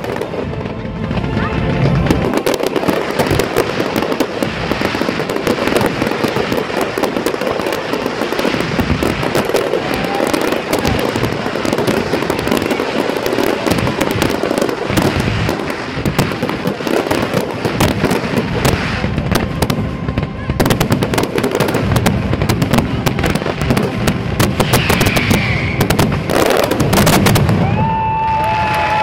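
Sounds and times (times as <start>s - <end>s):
fireworks bursting and crackling: 0.0s - 29.0s.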